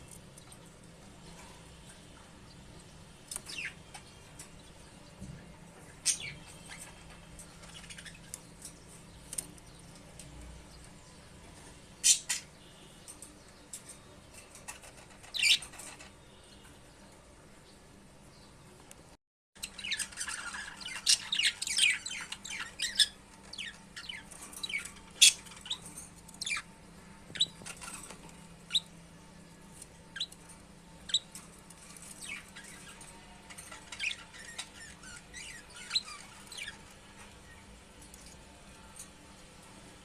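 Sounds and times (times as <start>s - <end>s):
budgies chirping: 2.6s - 4.8s, 5.8s - 10.0s, 14.5s - 16.7s, 19.6s - 29.0s, 29.7s - 37.6s.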